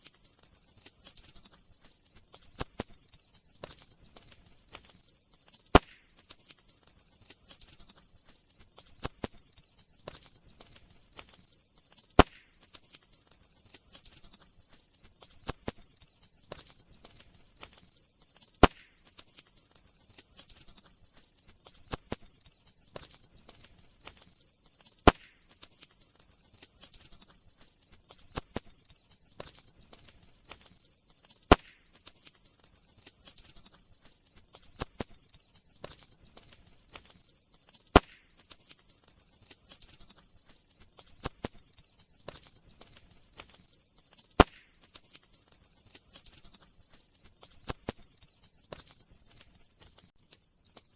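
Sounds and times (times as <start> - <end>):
wood fire crackling: 0.0 - 50.2
soft hiss of fire: 0.0 - 50.9
loud pop of fire: 5.7 - 6.2, 12.2 - 12.6, 18.6 - 19.0, 25.0 - 25.5, 31.5 - 31.9, 37.9 - 38.3, 44.4 - 44.7.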